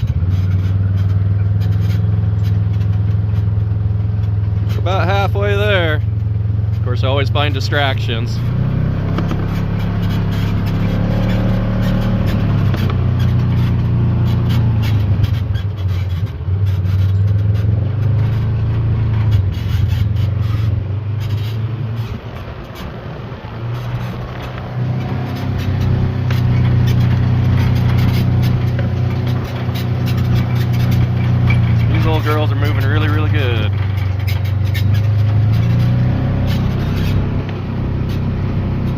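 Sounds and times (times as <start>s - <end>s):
vehicle engine running: 0.0s - 38.9s
knocks and rattles: 8.3s - 38.9s.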